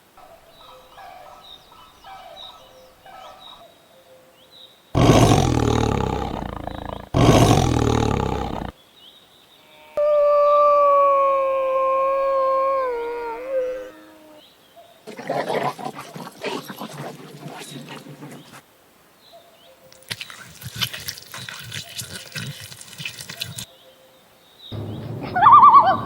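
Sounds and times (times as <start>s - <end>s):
big cat roaring: 5.0s - 8.7s
long steady howl: 10.0s - 14.4s.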